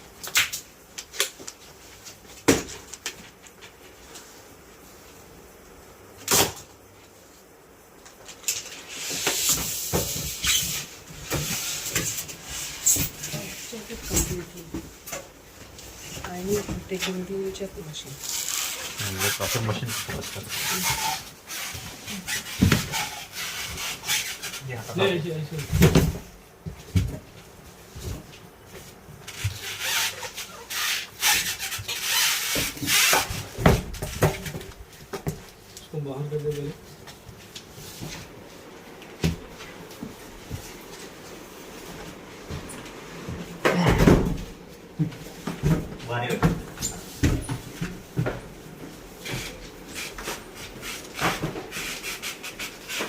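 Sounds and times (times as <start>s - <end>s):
rubbing and scraping: 18.0s - 25.2s, 28.8s - 34.5s, 49.0s - 53.0s.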